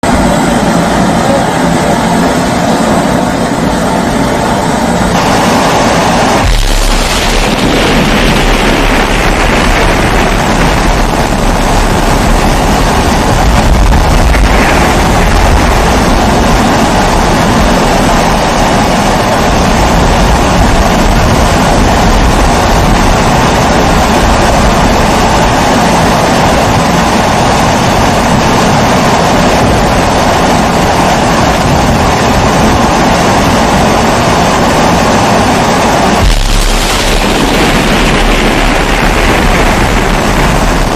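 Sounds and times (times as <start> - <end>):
pressure stove burner rushing: 0.2 - 32.0.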